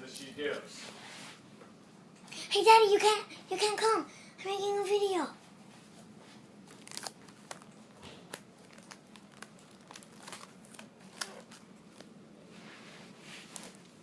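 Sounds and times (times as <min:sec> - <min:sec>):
crinkling and rustling: 0:05.7 - 0:14.0.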